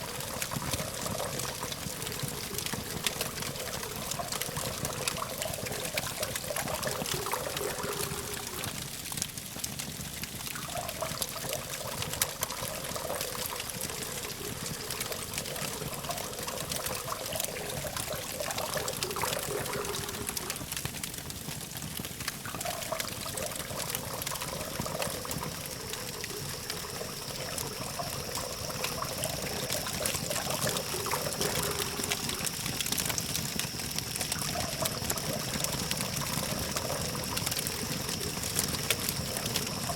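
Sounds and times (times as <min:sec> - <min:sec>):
campfire crackling and popping: 0:00.0 - 0:39.9
thin steady high tone: 0:22.5 - 0:39.9.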